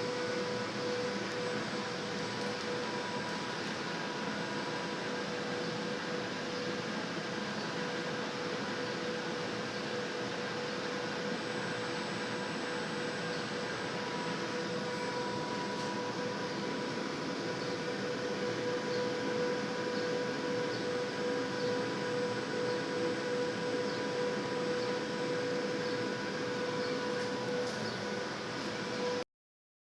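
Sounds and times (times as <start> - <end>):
machine hum: 0.0 - 29.2
tool spindle whine: 7.4 - 29.2.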